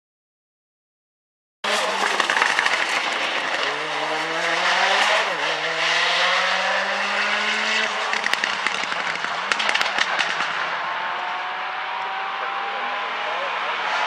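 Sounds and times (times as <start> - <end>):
car engine accelerating: 1.6 - 14.0
exhaust cracks and pops: 1.7 - 4.0, 7.8 - 10.6.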